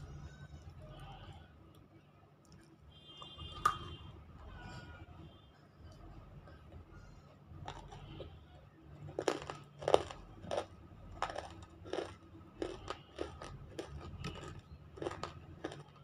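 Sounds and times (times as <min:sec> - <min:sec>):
biting and chewing crunches: 0:07.6 - 0:08.3, 0:09.0 - 0:16.0.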